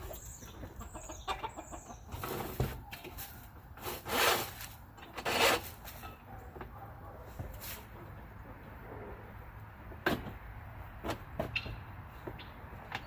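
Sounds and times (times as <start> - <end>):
metal scraping and rubbing: 3.8 - 6.3.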